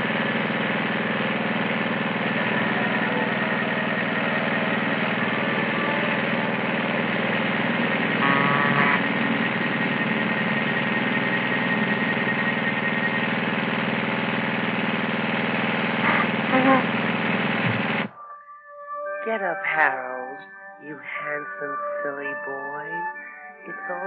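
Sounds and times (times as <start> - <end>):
lawn mower engine running: 0.0 - 18.1.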